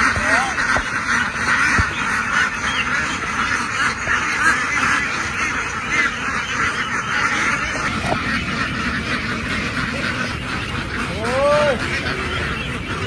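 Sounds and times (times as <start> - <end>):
flock of ducks quacking: 0.0 - 13.0.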